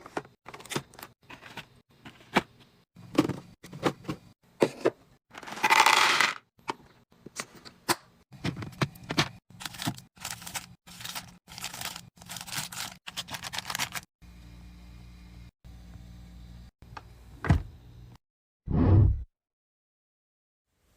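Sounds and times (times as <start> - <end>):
food packaging crinkling: 9.5 - 14.1.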